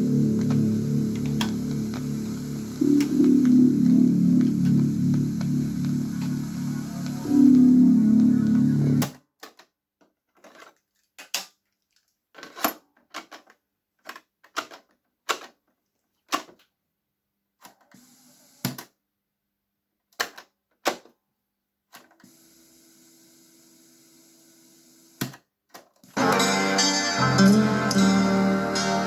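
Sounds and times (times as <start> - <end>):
music: 0.0 - 9.0, 26.2 - 29.0.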